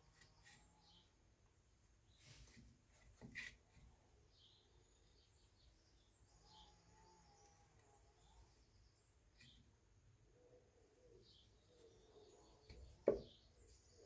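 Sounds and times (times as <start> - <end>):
faint bird chirps: 4.3 - 14.0.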